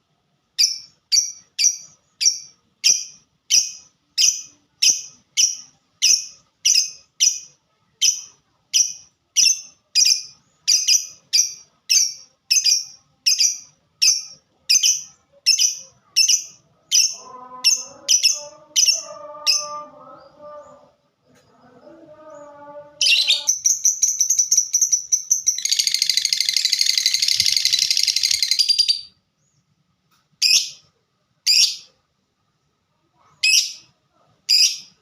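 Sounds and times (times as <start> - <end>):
lovebird chipping call: 23.0 - 29.1.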